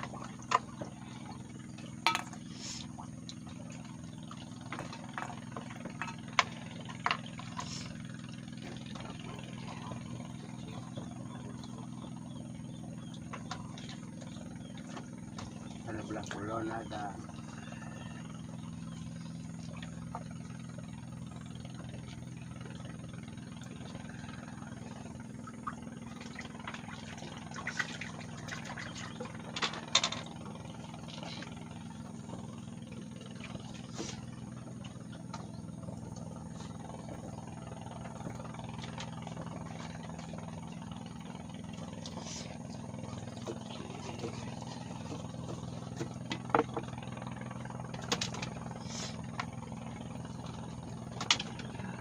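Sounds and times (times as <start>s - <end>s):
small engine idling: 0.0s - 52.0s.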